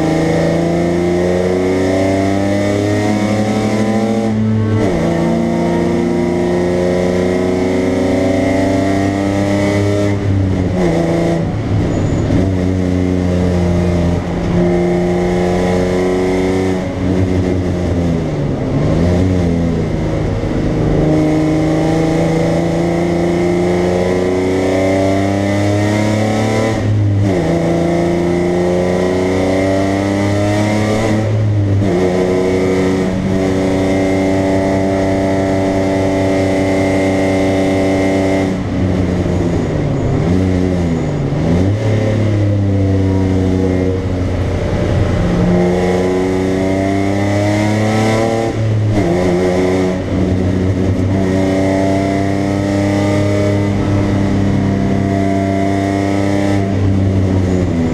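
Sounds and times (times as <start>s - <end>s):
car engine accelerating: 0.0s - 57.9s
wind and road noise: 0.0s - 57.9s.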